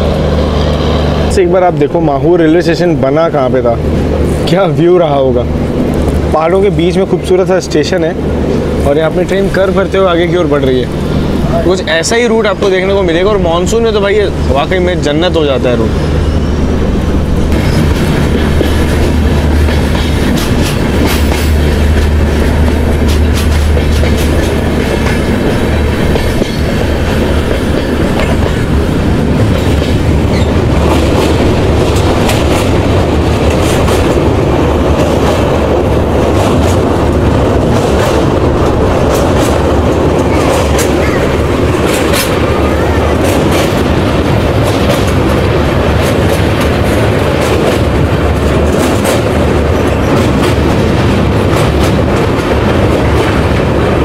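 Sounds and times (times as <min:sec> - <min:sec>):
train rumbling: 0:00.0 - 0:54.0
wheels clattering over rail joints: 0:17.3 - 0:54.0.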